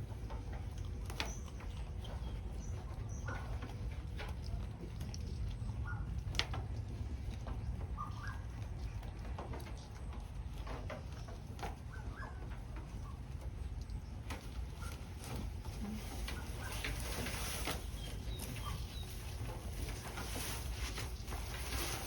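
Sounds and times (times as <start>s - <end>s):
soft bird calls: 5.2s - 22.0s.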